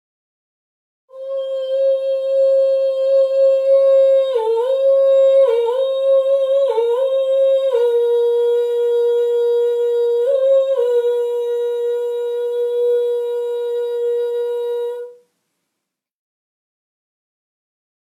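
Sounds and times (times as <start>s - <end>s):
person humming high note: 1.1s - 15.2s.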